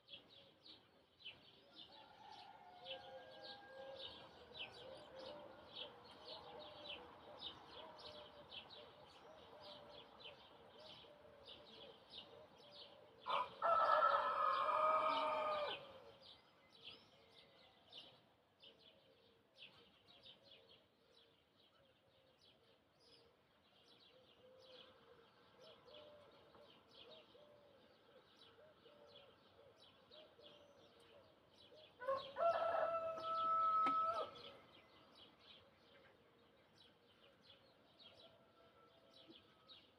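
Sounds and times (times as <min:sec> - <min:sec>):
rooster crowing: 0:02.0 - 0:04.0, 0:13.3 - 0:15.9, 0:32.0 - 0:34.4.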